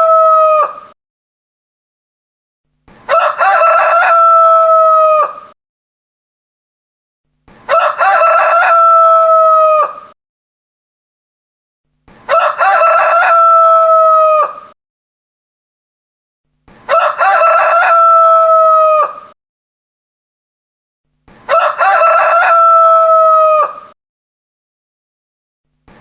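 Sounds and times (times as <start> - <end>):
rooster crowing: 0.0 - 0.9, 3.1 - 5.6, 7.7 - 10.2, 12.3 - 14.8, 16.9 - 19.4, 21.5 - 24.0.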